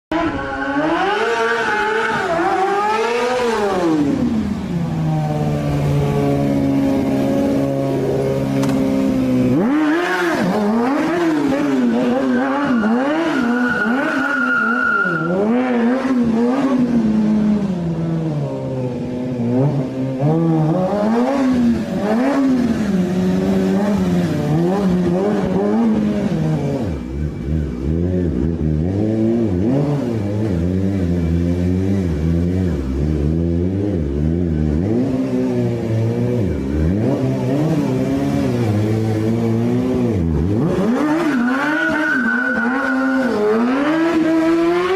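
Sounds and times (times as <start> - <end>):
motorcycle engine revving: 0.1 - 44.9
high squeal: 12.0 - 15.5, 41.2 - 43.5.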